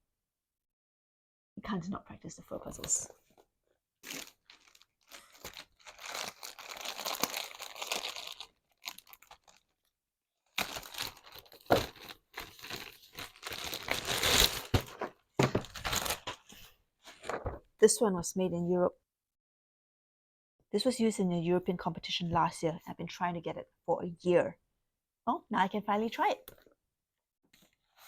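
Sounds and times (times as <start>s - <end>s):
packaging tearing and crinkling: 4.0s - 9.8s, 10.5s - 16.5s.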